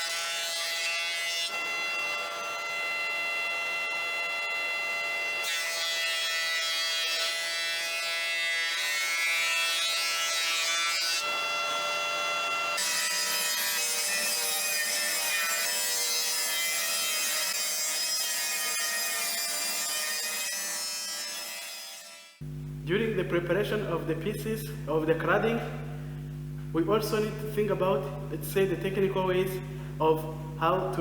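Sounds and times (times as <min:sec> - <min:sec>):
woodworking machine whining: 0:08.6 - 0:22.6.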